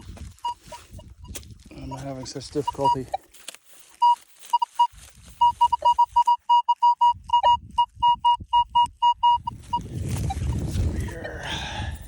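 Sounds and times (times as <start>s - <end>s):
metal detector pinpointer beeping: 0.4s - 3.3s, 4.0s - 10.7s.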